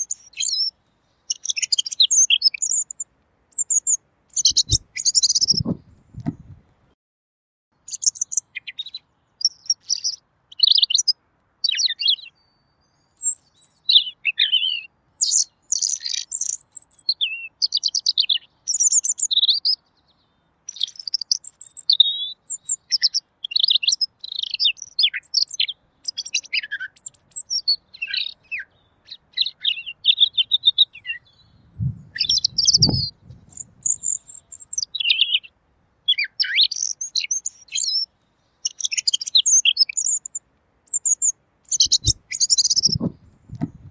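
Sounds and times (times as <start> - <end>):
robin singing: 0.0 - 6.6, 7.8 - 43.9
low thud: 5.6 - 6.6, 42.9 - 43.9.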